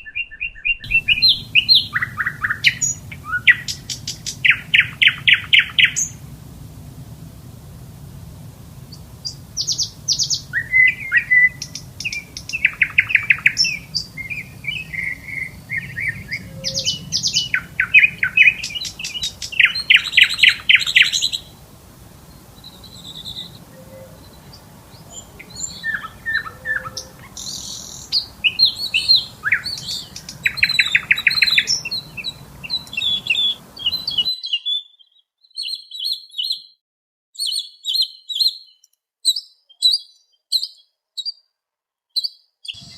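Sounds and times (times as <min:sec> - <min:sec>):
small birds chirping and trilling: 0:00.0 - 0:36.8, 0:37.4 - 0:41.5, 0:42.1 - 0:42.9
low background hum: 0:00.9 - 0:34.1.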